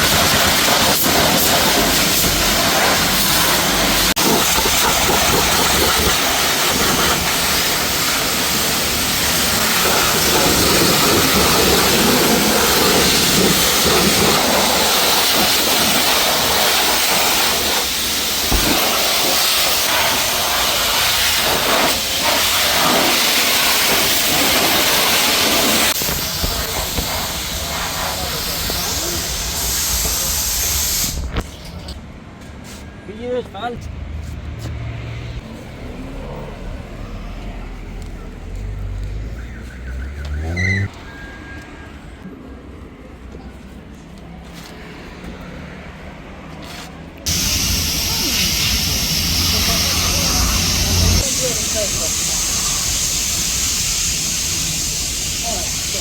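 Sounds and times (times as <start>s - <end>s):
pressure washer spraying water: 0.0s - 31.4s, 47.3s - 56.0s.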